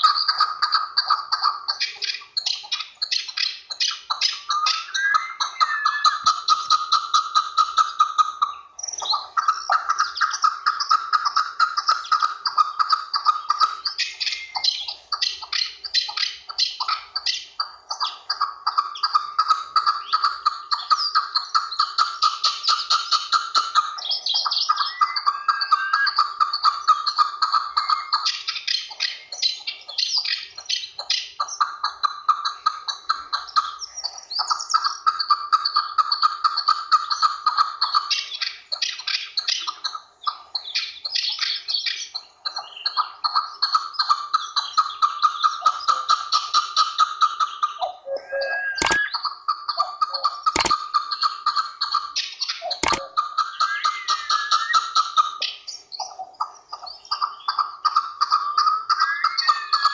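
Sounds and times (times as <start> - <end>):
partridge calling: 0.0 - 22.0.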